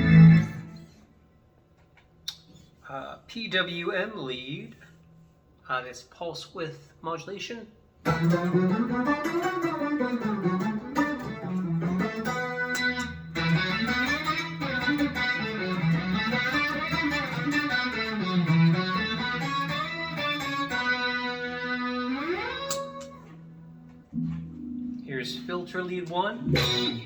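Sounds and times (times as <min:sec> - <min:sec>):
synth guitar lead line: 0:00.0 - 0:01.0, 0:08.1 - 0:25.7, 0:26.3 - 0:27.0.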